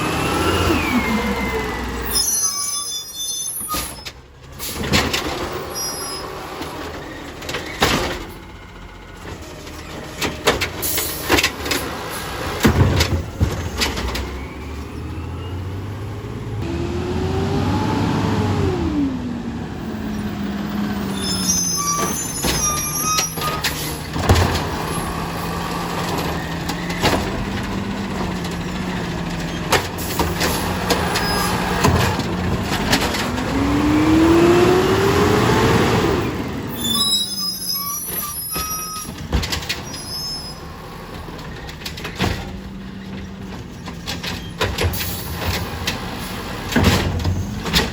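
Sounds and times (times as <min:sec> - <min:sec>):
garbage truck engine revving: 0:00.0 - 0:02.6, 0:03.8 - 0:47.9
metal clanks and squeaks: 0:00.7 - 0:15.8, 0:20.1 - 0:33.6, 0:36.2 - 0:47.9
truck engine humming: 0:05.3 - 0:39.3.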